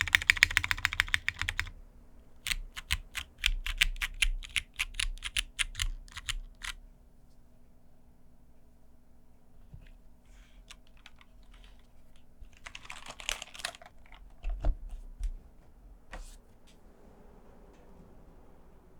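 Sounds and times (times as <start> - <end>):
typing on mechanical keyboard: 0.0 - 1.8, 2.4 - 6.8, 10.7 - 11.8, 12.5 - 14.4.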